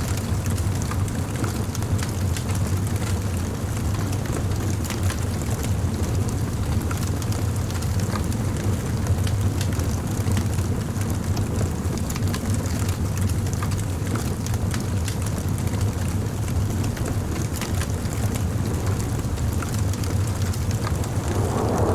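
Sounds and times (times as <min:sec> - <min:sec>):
wood fire burning: 0:17.4 - 0:21.9
burning wood crackling and popping: 0:19.6 - 0:21.9.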